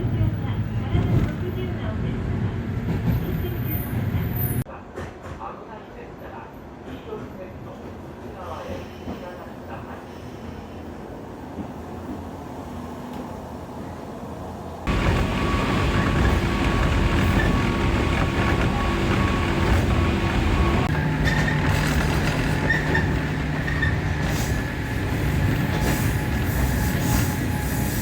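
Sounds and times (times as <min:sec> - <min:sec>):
train wheels rumbling on track: 0:14.9 - 0:28.0.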